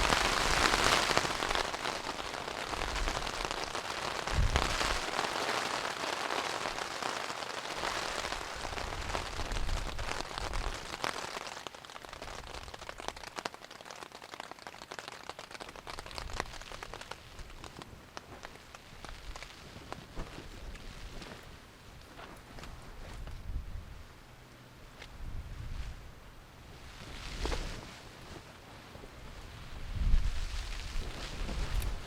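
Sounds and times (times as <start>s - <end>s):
rain falling: 0.0s - 21.8s
raindrops hitting close by: 0.0s - 23.3s
low rumbles of wind or thunder: 2.7s - 5.0s.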